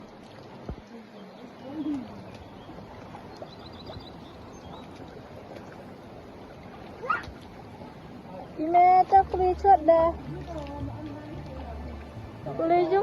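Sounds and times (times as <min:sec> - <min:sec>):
bird calling: 0:01.5 - 0:05.2.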